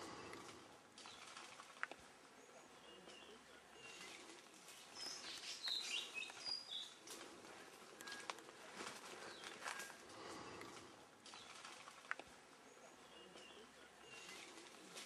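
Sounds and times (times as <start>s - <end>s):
birds chirping and whistling: 4.9s - 7.0s.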